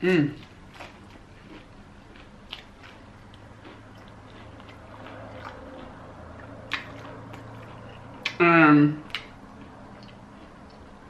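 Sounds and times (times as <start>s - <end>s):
chewing fried chicken: 0.3s - 11.0s
wet mouth clicks: 3.8s - 8.4s, 9.0s - 10.9s.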